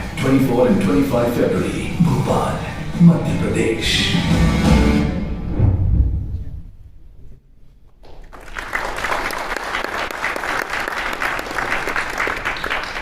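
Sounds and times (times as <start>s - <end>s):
music: 0.0s - 6.5s
audience applause: 8.1s - 13.0s.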